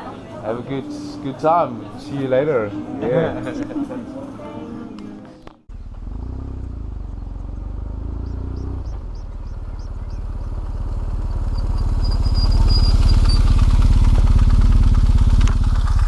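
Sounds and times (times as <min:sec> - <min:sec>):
motorcycle engine running: 0:05.7 - 0:16.0.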